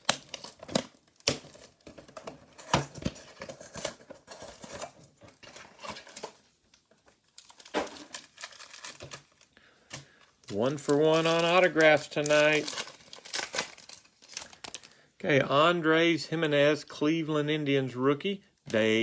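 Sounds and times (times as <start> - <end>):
plastic packaging tearing and crinkling: 0.0 - 15.0.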